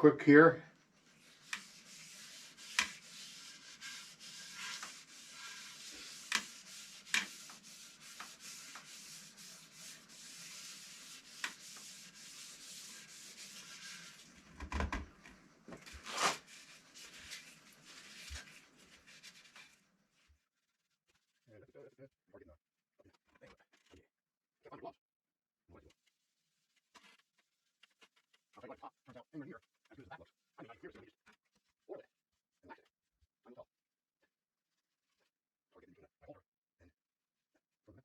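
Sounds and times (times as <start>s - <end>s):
applicator rubbing on wood: 0.3s - 19.8s.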